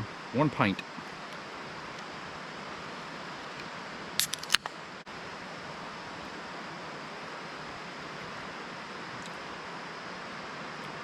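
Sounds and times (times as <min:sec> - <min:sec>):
background hiss: 0:00.0 - 0:11.0
beer can tab cracking open: 0:04.2 - 0:04.7.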